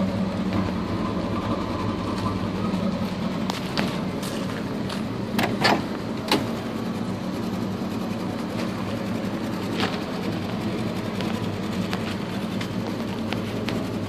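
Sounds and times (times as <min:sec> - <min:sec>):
car engine idling: 0:00.0 - 0:14.0
sharp clicks and knocks: 0:03.4 - 0:06.5.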